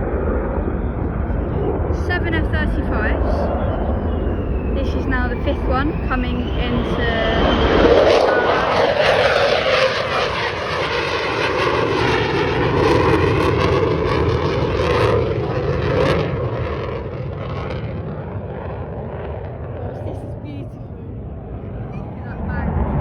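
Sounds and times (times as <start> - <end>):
jet passing low: 0.0 - 23.0.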